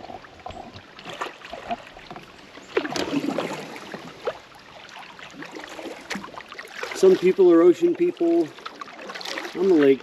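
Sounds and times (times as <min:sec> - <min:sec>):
paddle drips and clicks: 0:00.0 - 0:10.0
paddle swishing through water: 0:00.0 - 0:10.0.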